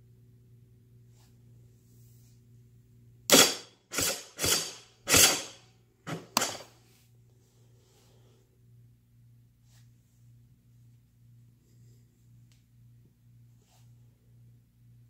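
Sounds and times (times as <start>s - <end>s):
electric starter cranking: 3.3s - 6.6s.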